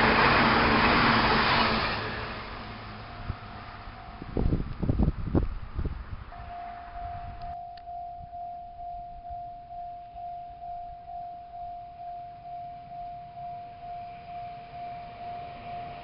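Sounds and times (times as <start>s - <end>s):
level crossing warning bell: 2.5s - 4.6s, 6.3s - 16.0s.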